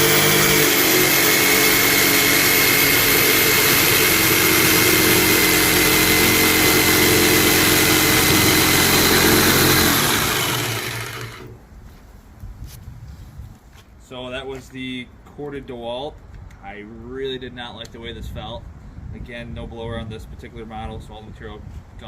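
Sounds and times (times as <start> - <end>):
jigsaw sawing with high whine: 0.0 - 11.6.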